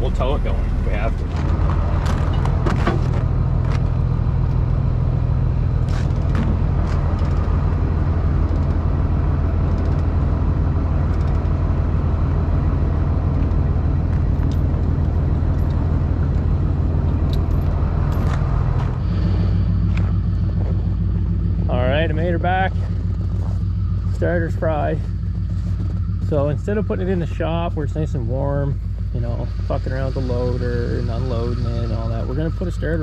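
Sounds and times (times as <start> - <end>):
diesel engine droning: 0.0 - 33.0
sharp clicks and knocks: 1.2 - 4.6, 5.8 - 7.8, 8.4 - 8.8, 9.6 - 10.2, 11.1 - 11.6.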